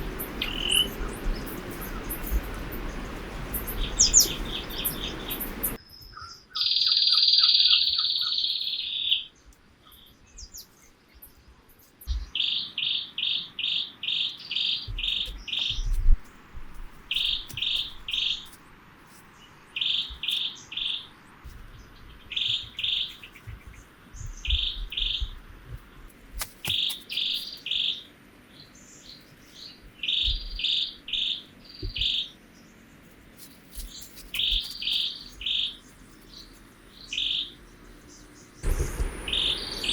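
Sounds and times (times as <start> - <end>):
faint low thumps: 38.6 - 39.9.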